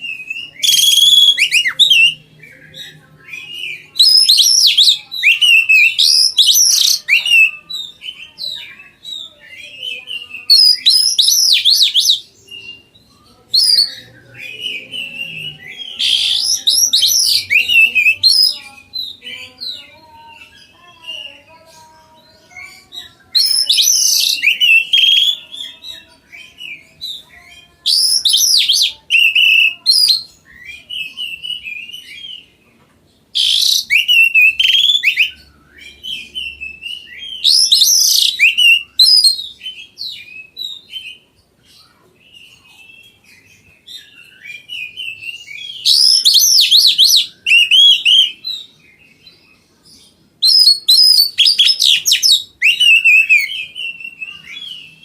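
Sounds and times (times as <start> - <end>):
bird singing high-pitched song: 0.0 - 32.6, 33.2 - 55.0.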